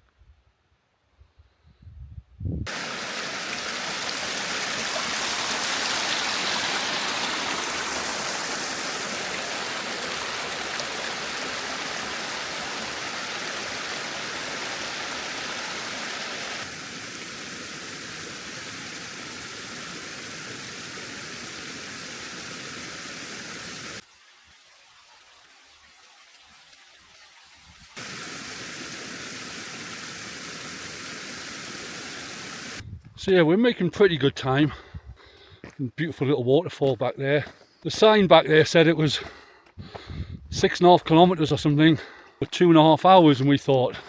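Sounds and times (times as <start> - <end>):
water rushing in stream: 2.7 - 32.8.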